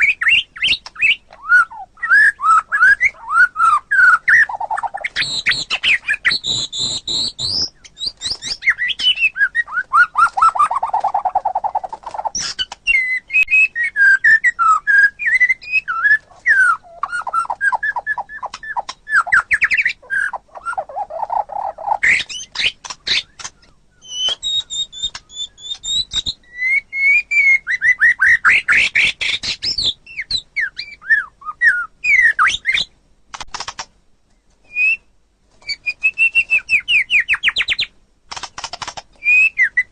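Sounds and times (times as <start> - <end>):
songbird singing whistled phrases: 0.0 - 33.0, 34.6 - 38.0, 39.2 - 39.9.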